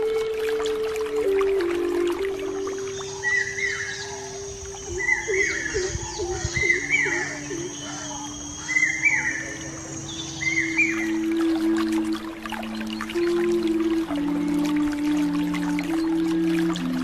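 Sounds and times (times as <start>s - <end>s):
steady high-pitched hiss: 0.0s - 17.0s
bird calling short phrase: 2.9s - 11.2s.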